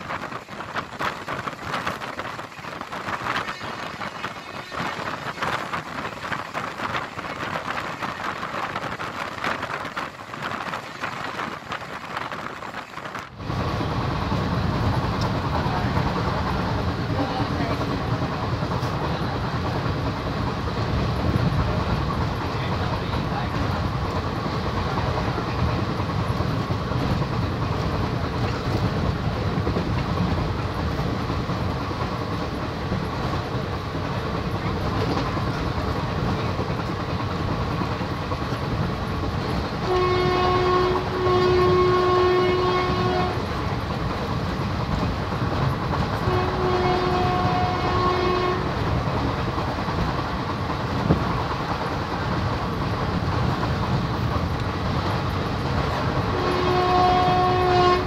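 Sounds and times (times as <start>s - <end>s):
train wheels rumbling on rails: 0.0s - 58.0s
train horn blasts: 39.8s - 43.5s, 46.2s - 48.8s, 56.3s - 58.0s.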